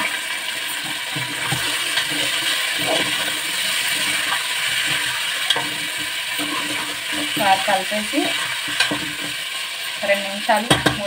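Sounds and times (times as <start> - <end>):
chicken frying in hot oil: 0.0 - 11.0
spoon knocking metal pot: 4.8 - 9.4, 10.6 - 11.0.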